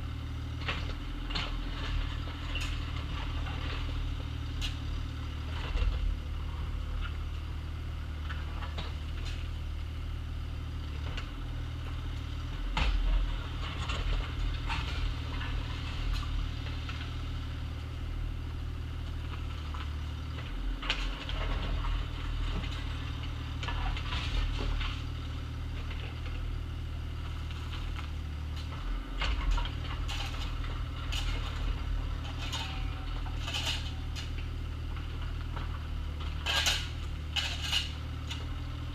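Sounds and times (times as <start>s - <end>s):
excavator diesel engine running: 0.0s - 38.9s
bucket clanking and scraping gravel: 29.3s - 34.4s, 36.3s - 38.0s.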